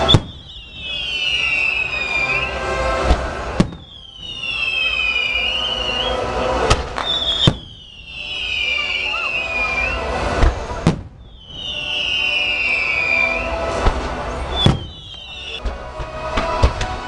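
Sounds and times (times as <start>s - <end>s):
shrill descending whistles: 0.0s - 2.6s, 3.7s - 10.2s, 11.2s - 13.6s, 14.4s - 15.6s
firework bangs: 0.0s - 17.0s.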